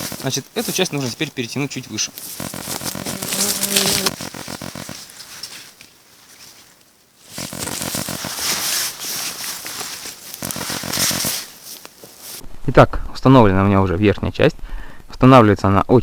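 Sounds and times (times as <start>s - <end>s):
nylon fabric and webbing rustling: 0.0s - 12.4s
short creak: 2.2s - 5.6s.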